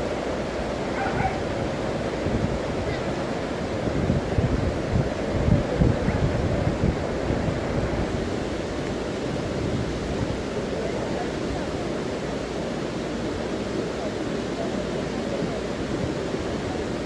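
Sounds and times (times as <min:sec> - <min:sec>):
rushing floodwater: 0:00.0 - 0:17.0
wind buffeting microphone: 0:00.6 - 0:10.7.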